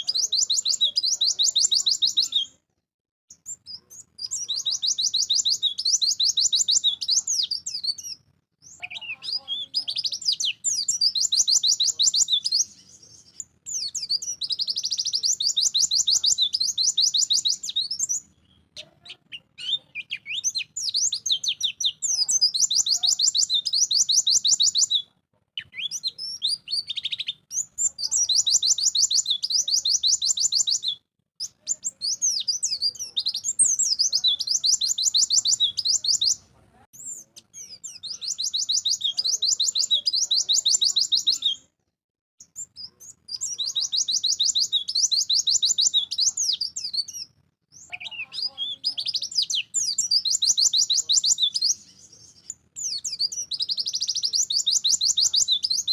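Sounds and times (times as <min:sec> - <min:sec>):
bird twittering trills: 0:00.0 - 0:02.6, 0:03.3 - 0:18.7, 0:19.3 - 0:25.0.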